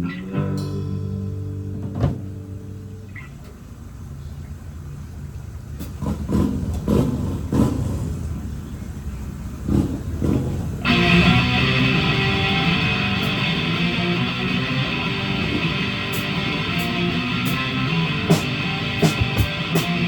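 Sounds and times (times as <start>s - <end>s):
band chord ringing: 0.0s - 3.1s, 10.9s - 20.0s
motorcycle engines revving: 4.6s - 20.0s.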